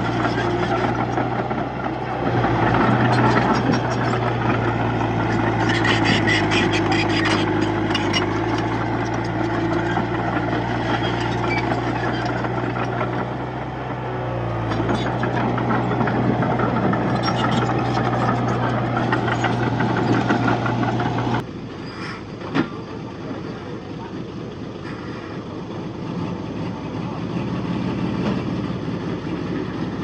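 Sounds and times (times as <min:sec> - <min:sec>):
bulldozer diesel engine running: 0:00.0 - 0:30.0.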